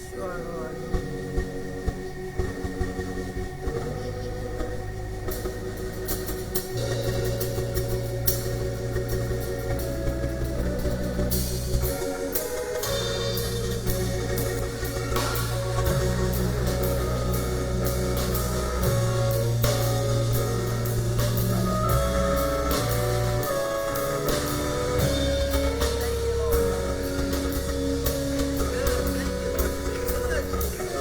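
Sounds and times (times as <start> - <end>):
bass notes: 0.0 - 31.0
band playing instrumental: 4.6 - 31.0
drum hits: 12.6 - 31.0.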